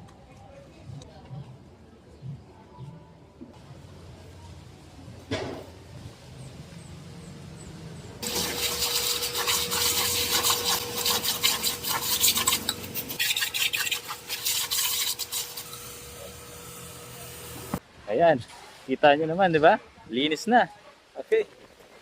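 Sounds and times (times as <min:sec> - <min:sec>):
rough scrubbing strokes: 0:08.2 - 0:16.2.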